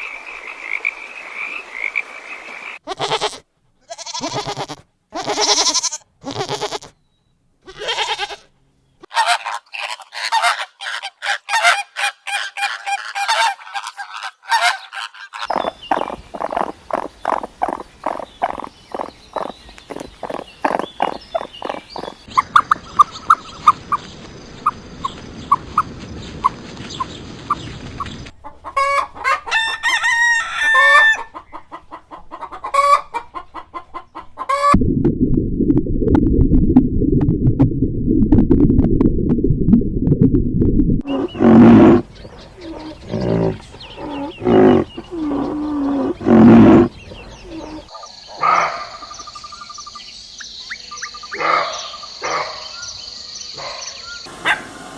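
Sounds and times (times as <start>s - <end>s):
chickens clucking: 9.0s - 24.1s, 24.7s - 29.7s, 30.8s - 34.8s
rooster crowing: 28.9s - 31.3s.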